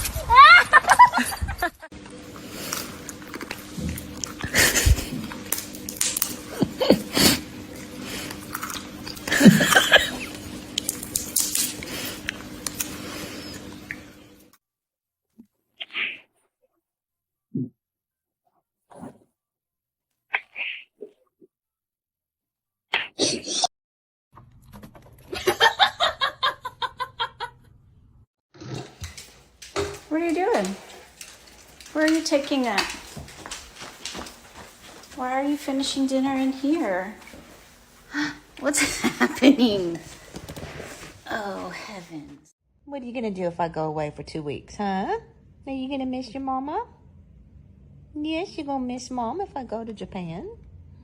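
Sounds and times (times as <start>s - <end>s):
person laughing: 0.2s - 1.9s, 4.4s - 5.3s, 6.5s - 7.4s, 9.2s - 10.4s, 25.3s - 27.7s, 38.1s - 40.0s.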